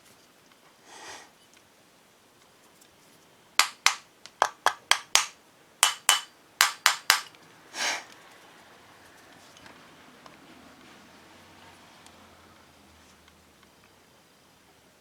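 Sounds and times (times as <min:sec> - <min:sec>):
hard object tapping hard surface: 0:03.6 - 0:07.3.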